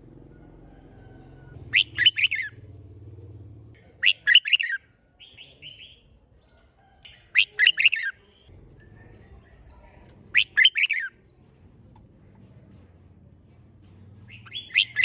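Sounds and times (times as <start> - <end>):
bird singing quick notes: 1.7 - 2.6.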